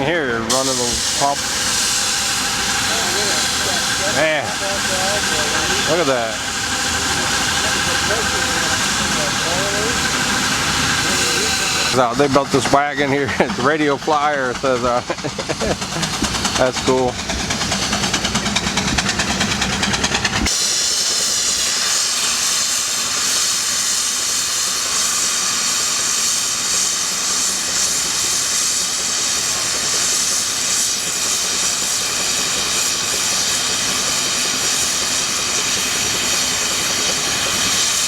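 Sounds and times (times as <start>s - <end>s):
steam hissing: 0.0s - 38.0s
mechanical chugging: 0.5s - 21.9s.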